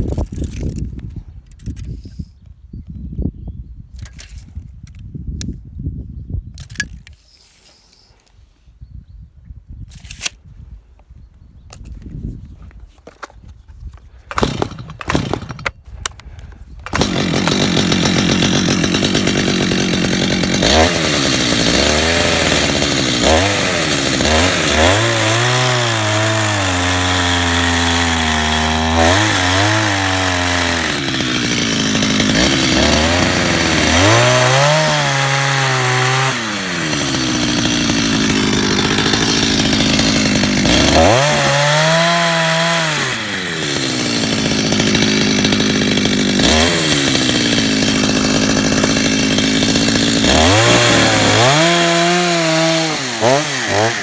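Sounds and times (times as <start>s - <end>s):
chainsaw cutting wooden log: 14.2s - 54.0s.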